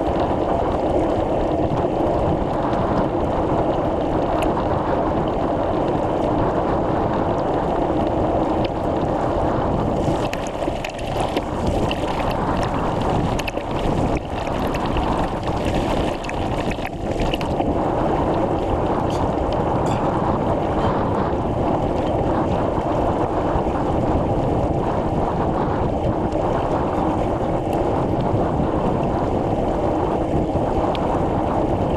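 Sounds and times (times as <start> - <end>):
wind buffeting microphone: 0.0 - 31.9.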